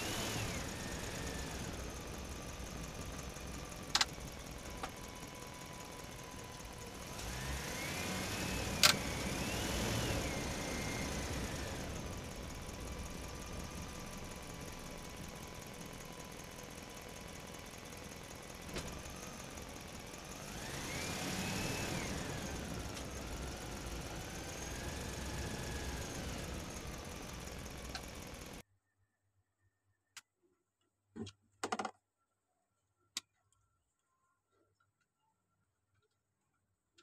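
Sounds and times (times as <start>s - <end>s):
engine drone with whine: 0.0s - 28.6s.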